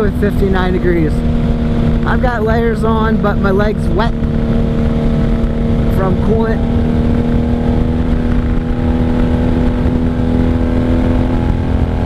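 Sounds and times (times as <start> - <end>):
motorcycle engine cruising: 0.0 - 12.0
wind rumbling on microphone: 0.0 - 12.0.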